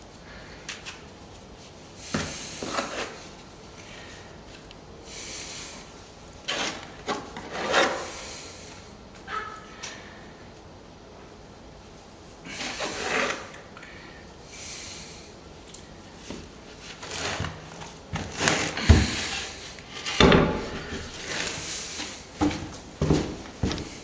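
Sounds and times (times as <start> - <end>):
scraping plaster with tools: 2.1 - 3.4, 6.4 - 8.3, 12.5 - 13.7, 16.9 - 21.6
heavy knocks: 20.2 - 21.1.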